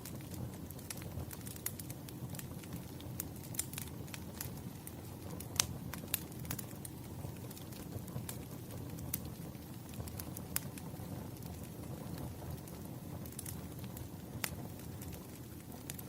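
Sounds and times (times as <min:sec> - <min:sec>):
low rumble of burning wood: 0:00.0 - 0:16.0
firewood pops and snaps: 0:13.3 - 0:13.6.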